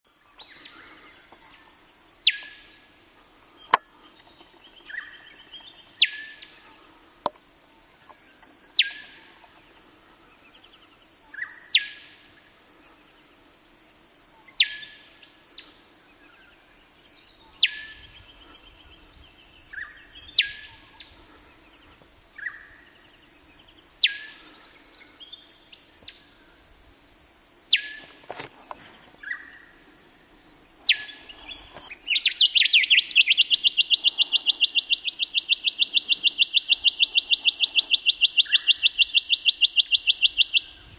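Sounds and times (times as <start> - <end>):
bird whistling song: 1.3 - 2.6, 4.9 - 6.5, 7.9 - 9.1, 10.8 - 12.1, 13.6 - 15.6, 16.8 - 18.2, 19.4 - 21.1, 22.4 - 26.2, 26.9 - 28.1, 29.2 - 40.9.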